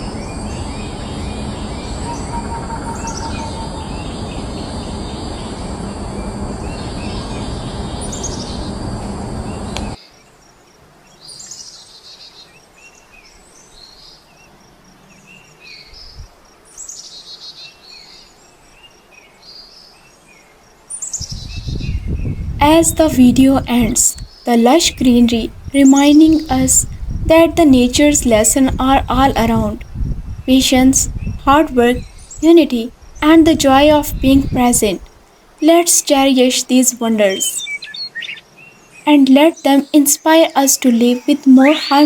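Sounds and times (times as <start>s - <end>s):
birds chirping and calling: 0.0s - 5.6s, 23.8s - 26.9s, 36.1s - 38.4s, 39.4s - 42.0s.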